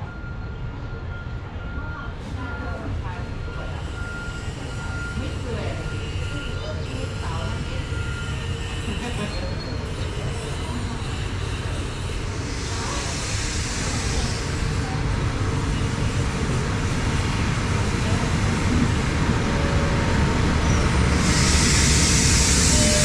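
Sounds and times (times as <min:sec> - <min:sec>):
high hiss: 0:21.1 - 0:23.0.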